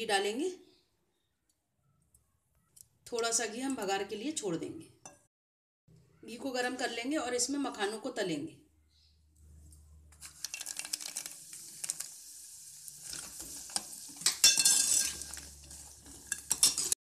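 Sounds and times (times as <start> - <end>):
seeds sizzling in hot ghee: 10.1 - 17.0.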